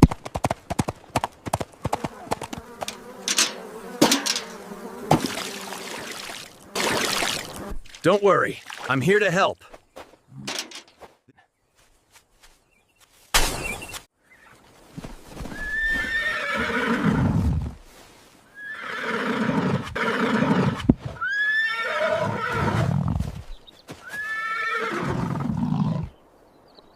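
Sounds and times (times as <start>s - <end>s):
horse-like whinnies: 15.5s - 17.6s, 18.6s - 23.2s, 24.0s - 26.1s.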